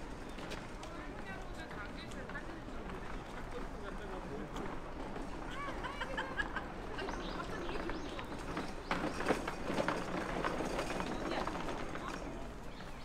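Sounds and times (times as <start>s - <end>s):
outdoor background noise: 0.0s - 13.0s
birds chirping: 7.0s - 9.4s, 11.0s - 13.0s.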